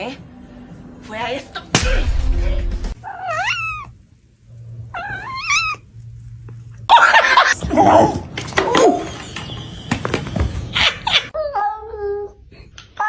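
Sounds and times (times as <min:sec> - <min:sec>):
cat meowing: 0:03.0 - 0:04.0, 0:04.9 - 0:05.8.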